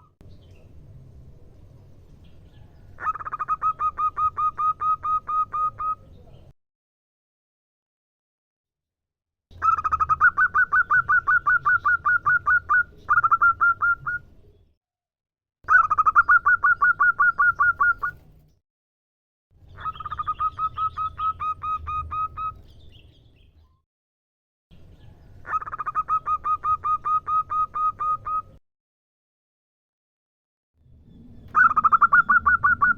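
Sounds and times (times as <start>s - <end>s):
dove calling rapid short notes: 3.0s - 6.0s, 9.6s - 14.2s, 15.7s - 18.3s, 19.7s - 22.6s, 25.4s - 28.6s, 31.5s - 32.9s.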